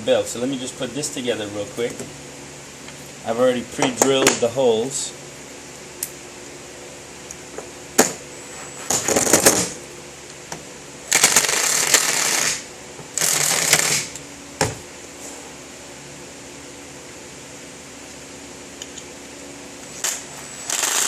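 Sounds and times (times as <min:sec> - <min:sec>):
power drill driving screws: 0:11.1 - 0:14.1, 0:20.0 - 0:21.0.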